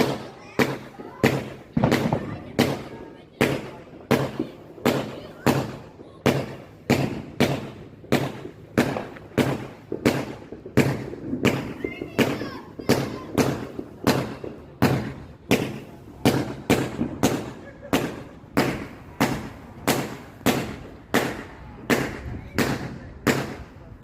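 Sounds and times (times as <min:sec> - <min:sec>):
fireworks banging: 0:00.0 - 0:24.0.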